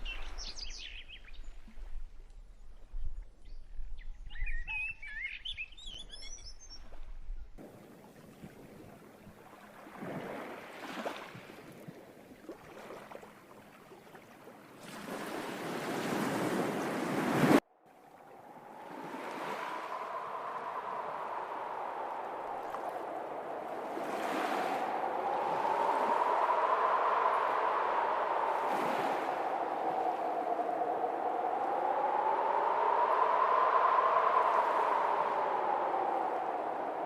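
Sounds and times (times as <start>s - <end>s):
birds chirping: 0.0s - 1.5s
rushing water: 7.6s - 37.0s.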